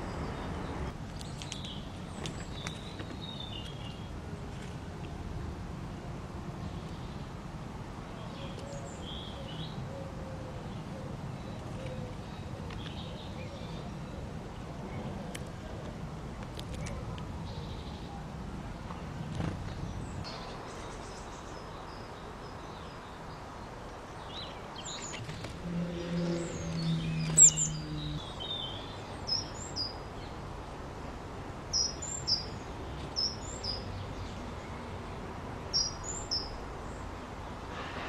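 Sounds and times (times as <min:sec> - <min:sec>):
small birds chirping: 0:00.0 - 0:04.2, 0:10.6 - 0:15.5, 0:18.8 - 0:30.4, 0:31.6 - 0:37.7
low steady hum: 0:25.1 - 0:31.7.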